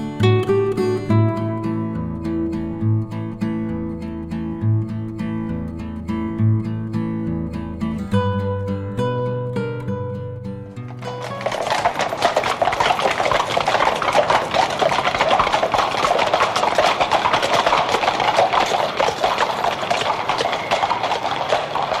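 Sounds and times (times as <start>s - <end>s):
guitar music: 0.0s - 11.4s
horse hooves clip-clopping: 10.7s - 22.0s.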